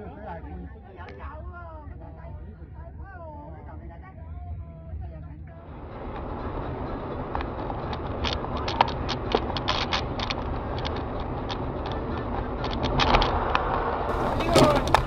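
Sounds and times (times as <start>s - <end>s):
vehicle rumbling: 5.7s - 15.0s
sharp clicks and creaks: 6.0s - 15.0s.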